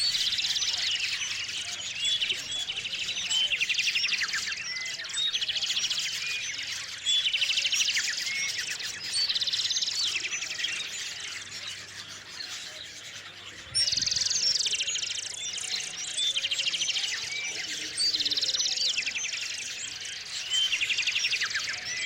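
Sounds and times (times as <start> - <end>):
bird chirps: 0.0 - 22.0
songbird singing with trill: 0.0 - 22.0.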